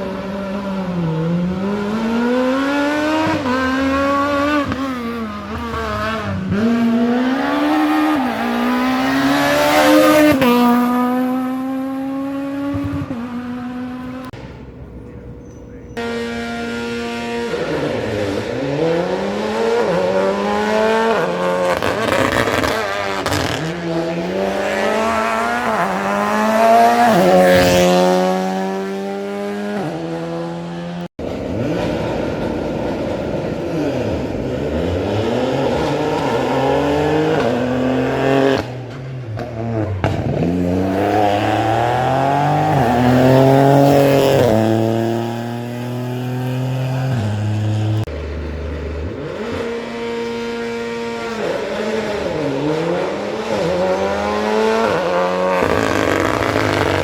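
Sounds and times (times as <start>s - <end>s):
rally car engine accelerating: 0.0s - 57.0s.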